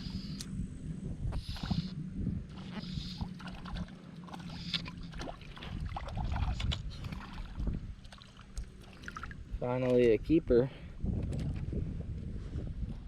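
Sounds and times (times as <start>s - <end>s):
low rumble: 0.0s - 9.7s
water splashing and lapping: 2.5s - 10.1s.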